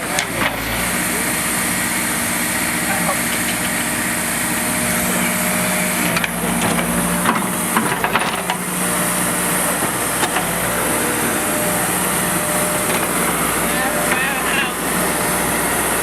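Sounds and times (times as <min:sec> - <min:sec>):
diesel engine running: 0:00.0 - 0:16.0
sharp metal knocks and clanks: 0:06.1 - 0:08.6.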